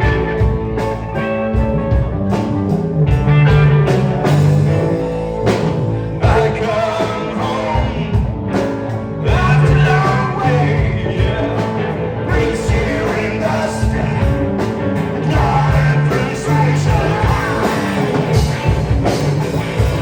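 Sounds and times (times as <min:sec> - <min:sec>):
bass guitar: 0:00.0 - 0:20.0
drums: 0:00.0 - 0:20.0
electric guitar: 0:00.0 - 0:20.0
person singing: 0:06.1 - 0:08.4, 0:09.2 - 0:18.5.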